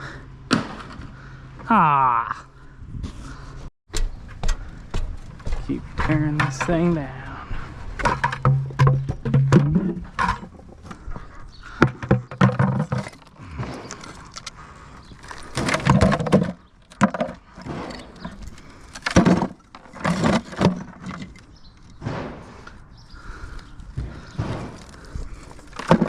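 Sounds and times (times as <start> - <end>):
bricks knocking and clattering: 8.0 - 14.5, 15.2 - 22.4, 23.9 - 26.0.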